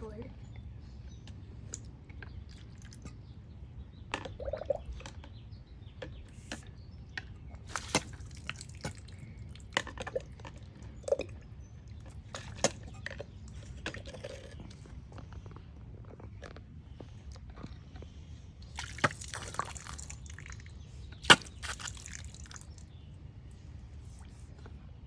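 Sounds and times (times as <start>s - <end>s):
water splashing and dripping: 7.6s - 12.9s, 18.6s - 22.9s.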